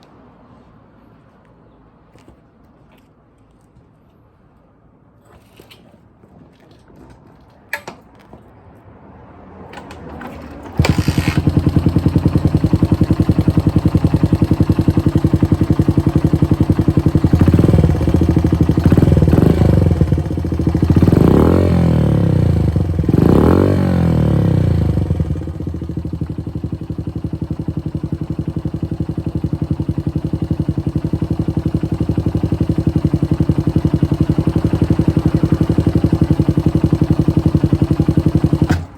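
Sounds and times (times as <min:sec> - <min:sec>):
engine starter clicks: 0:09.8 - 0:11.7, 0:38.6 - 0:38.9
small motorcycle engine idling: 0:10.2 - 0:38.9
engine revving: 0:10.6 - 0:38.8.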